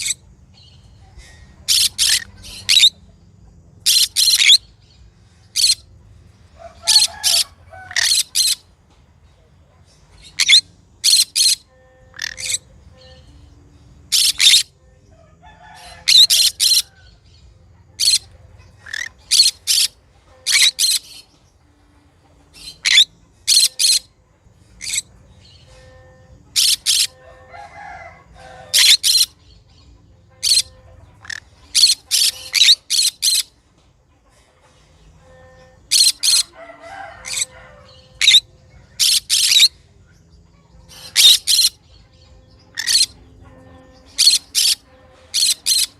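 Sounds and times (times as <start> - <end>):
parrot high-pitched calls: 0.0 - 0.3, 1.1 - 3.0, 3.8 - 4.7, 5.4 - 5.9, 6.6 - 8.7, 10.2 - 13.4, 14.1 - 14.8, 15.4 - 17.2, 18.0 - 21.3, 22.5 - 24.1, 24.7 - 29.6, 30.4 - 33.5, 35.2 - 40.2, 40.8 - 41.9, 42.6 - 45.9
soft parrot chattering: 1.6 - 3.0, 10.2 - 12.7, 14.1 - 14.7, 18.0 - 21.2, 22.6 - 24.1, 30.4 - 33.5, 35.2 - 36.6, 37.2 - 39.8, 40.8 - 41.8, 42.7 - 45.9.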